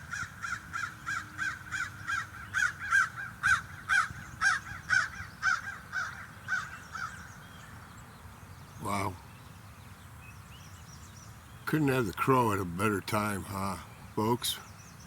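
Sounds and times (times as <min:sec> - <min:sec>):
crow cawing: 0:00.0 - 0:07.3.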